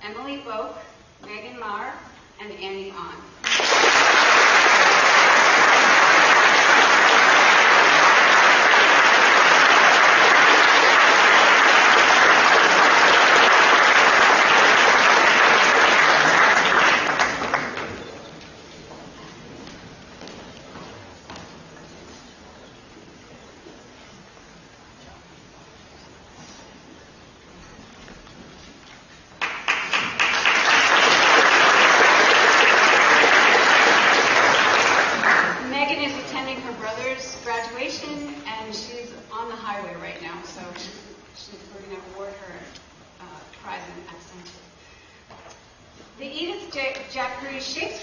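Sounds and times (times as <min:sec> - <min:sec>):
audience applauding: 0:03.4 - 0:18.2, 0:29.4 - 0:35.7.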